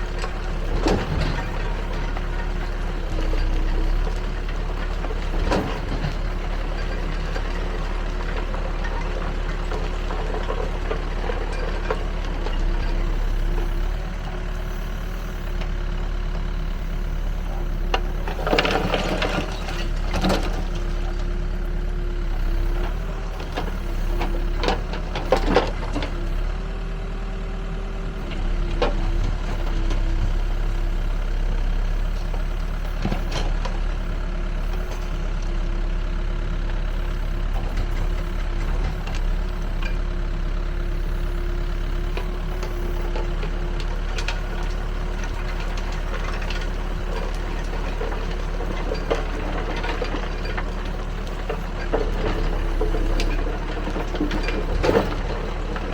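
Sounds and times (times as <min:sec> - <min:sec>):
diesel engine humming: 0:00.0 - 0:55.9
machine knocking and rattling: 0:00.2 - 0:14.5.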